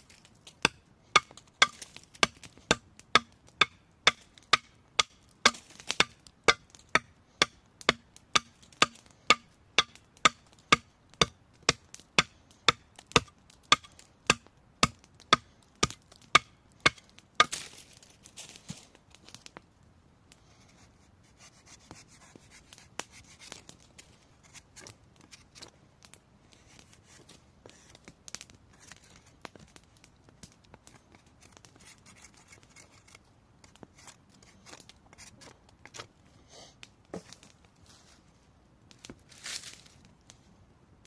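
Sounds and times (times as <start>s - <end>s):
knife scraping and shaving wood: 31.4s - 36.1s.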